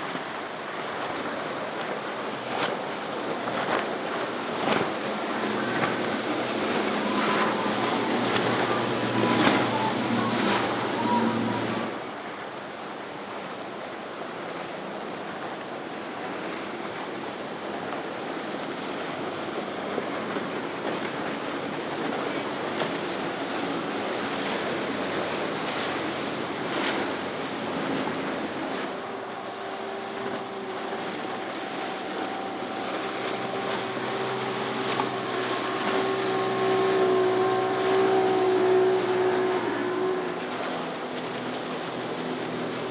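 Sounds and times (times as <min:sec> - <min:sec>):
boat outboard engines: 0:00.0 - 0:42.9
waves and boat wake: 0:00.0 - 0:42.9
wind: 0:00.0 - 0:42.9.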